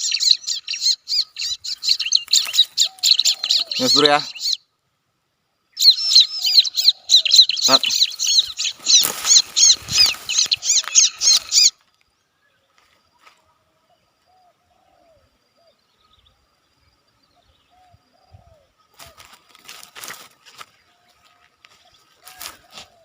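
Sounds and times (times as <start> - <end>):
bird calling with sharp high chirps: 0.0 - 4.8, 5.7 - 12.8.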